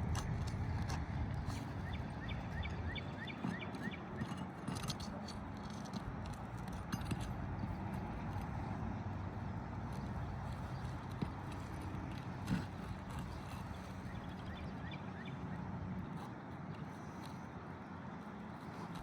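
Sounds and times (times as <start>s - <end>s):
clicks and scrapes on roof shingles: 0.0s - 15.4s, 16.0s - 19.0s
bird chirping: 1.5s - 4.4s, 13.4s - 15.5s.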